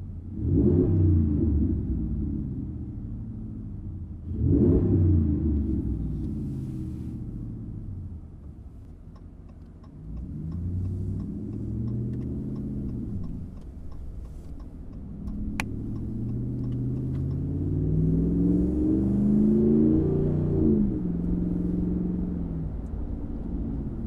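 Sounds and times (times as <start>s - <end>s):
light ticking: 8.4s - 17.5s
sharp click: 11.2s - 17.4s.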